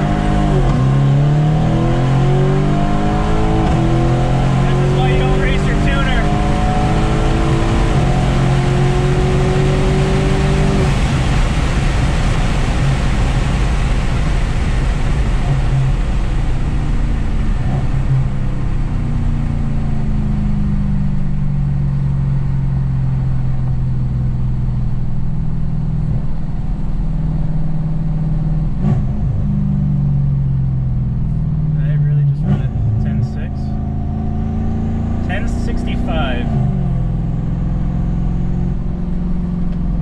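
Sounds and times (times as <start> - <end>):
car engine pulling hard: 0.0 - 40.0
rushing wind: 6.3 - 19.1.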